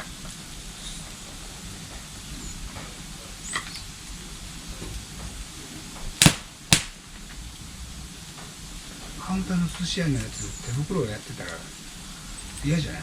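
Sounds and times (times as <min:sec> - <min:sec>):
low background hiss: 0:00.0 - 0:13.0
sharp knocks: 0:06.2 - 0:07.0.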